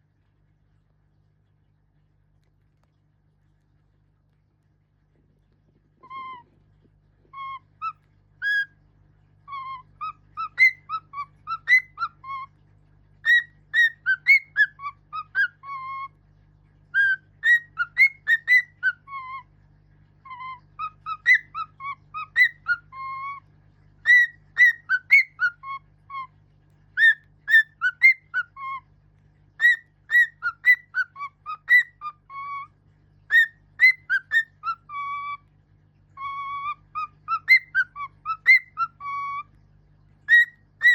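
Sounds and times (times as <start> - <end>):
pet bird whistling a tune: 7.3 - 8.7, 9.5 - 12.5, 13.2 - 16.1, 17.0 - 19.4, 20.3 - 23.4, 24.0 - 26.3, 27.0 - 28.8, 29.6 - 32.7, 33.3 - 35.4, 36.2 - 39.5, 40.3 - 40.9.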